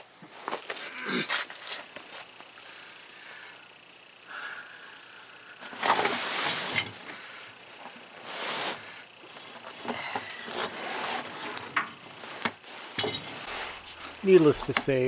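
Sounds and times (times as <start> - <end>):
tire scraping: 10.6 - 15.0.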